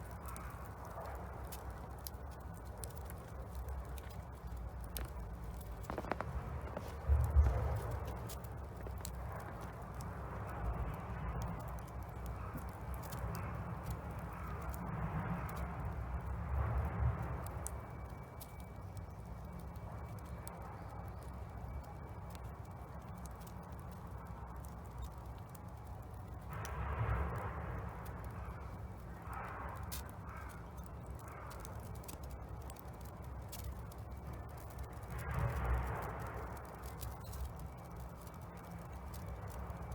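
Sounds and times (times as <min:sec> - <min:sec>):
fire rushing hiss: 0:00.0 - 0:18.6, 0:19.6 - 0:39.9
wood fire crackling and popping: 0:00.0 - 0:39.9
low rumble: 0:00.8 - 0:17.8.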